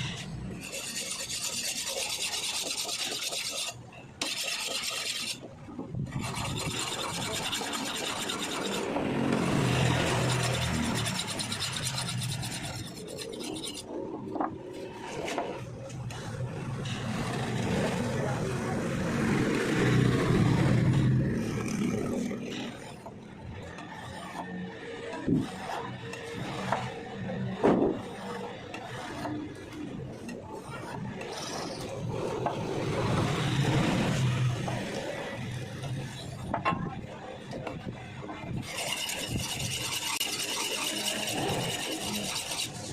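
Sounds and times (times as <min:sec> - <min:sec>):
file rasping on metal blade: 0:00.0 - 0:05.4, 0:06.1 - 0:09.0, 0:09.6 - 0:13.9, 0:38.5 - 0:42.9.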